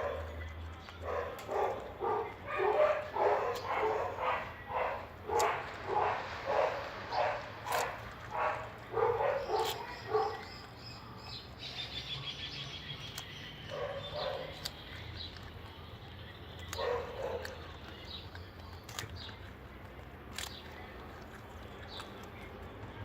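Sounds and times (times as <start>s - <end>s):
animal yapping: 1.0s - 10.7s, 16.6s - 17.7s.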